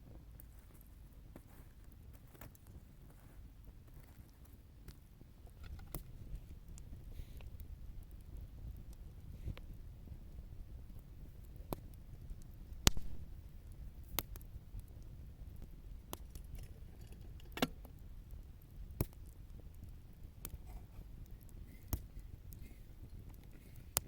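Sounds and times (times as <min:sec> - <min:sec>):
low rumble of burning fire: 0:00.0 - 0:24.0
sharp pops and snaps of fire: 0:00.0 - 0:24.0
campfire crackling: 0:00.1 - 0:24.0.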